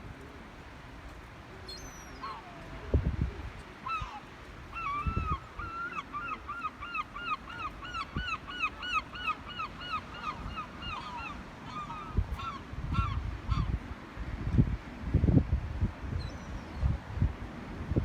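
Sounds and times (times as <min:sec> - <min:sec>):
gull calling: 0:03.8 - 0:13.7.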